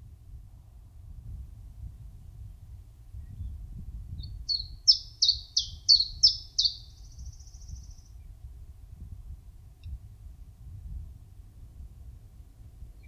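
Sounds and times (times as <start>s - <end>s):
songbird singing: 3.2s - 8.3s.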